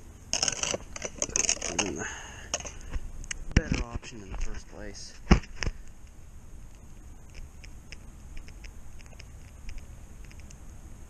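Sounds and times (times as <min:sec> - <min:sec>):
faint crackling ticks: 0:05.6 - 0:10.6.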